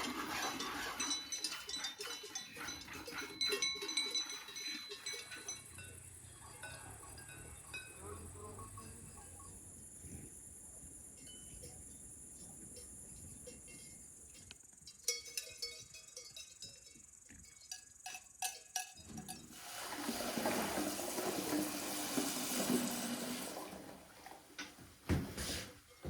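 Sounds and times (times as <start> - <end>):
light ringing clinks: 0.2 - 9.7, 12.6 - 19.6
liquid pouring: 19.5 - 24.5.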